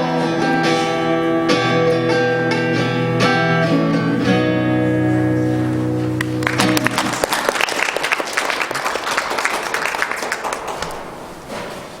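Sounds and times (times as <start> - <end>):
acoustic guitar chord ringing: 0.0 - 7.0
audience applause: 6.2 - 11.5.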